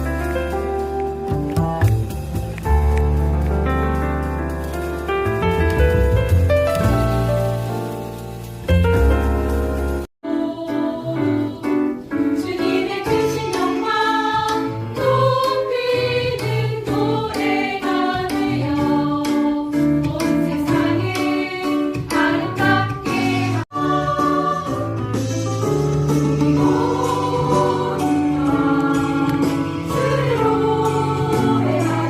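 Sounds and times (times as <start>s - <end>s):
musical accompaniment: 0.0s - 32.0s
children singing: 10.3s - 25.0s, 26.4s - 32.0s.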